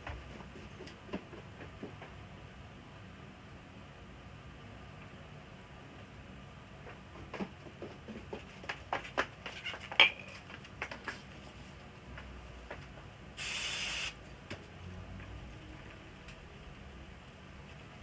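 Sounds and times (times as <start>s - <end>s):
short spray hiss: 13.4s - 14.2s.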